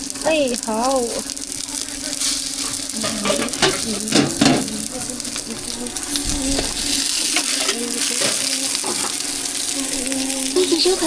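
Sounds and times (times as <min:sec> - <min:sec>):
flatbread sizzling in oil: 0:00.0 - 0:11.0
cooking utensil knocks: 0:03.0 - 0:05.4.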